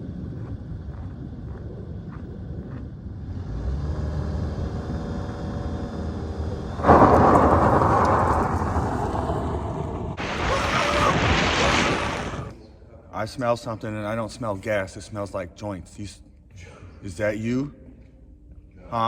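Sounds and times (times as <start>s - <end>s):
hissing rush: 6.8s - 12.5s.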